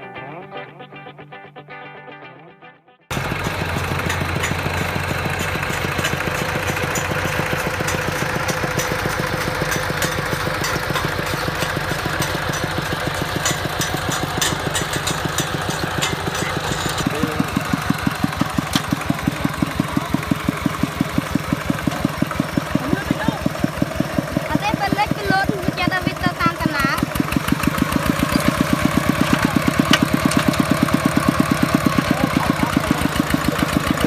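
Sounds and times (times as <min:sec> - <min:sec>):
harvesting machine engine running: 0:03.1 - 0:34.0.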